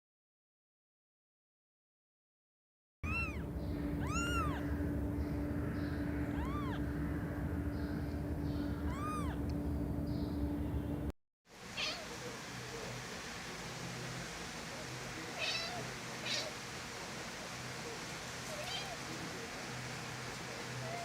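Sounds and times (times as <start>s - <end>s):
cat meowing: 3.0s - 4.7s, 6.2s - 6.8s, 8.8s - 9.4s, 11.7s - 12.2s, 15.4s - 16.6s, 18.5s - 19.1s, 20.8s - 21.0s
steady low hum: 3.0s - 21.0s.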